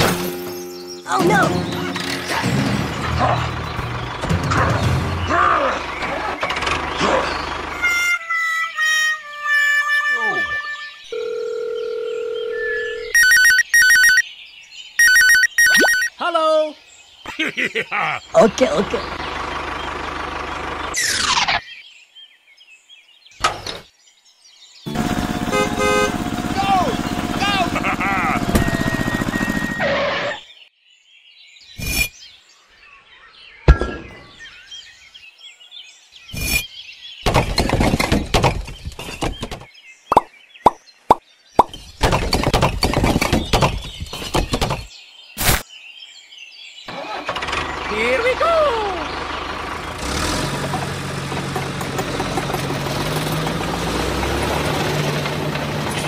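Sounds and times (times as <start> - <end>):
birds chirping faintly: 10.2 - 29.6, 30.3 - 52.6
phone ringtone warbling trill: 12.5 - 14.2, 15.0 - 16.1
bricks rattling together: 37.3 - 39.7, 42.0 - 44.9.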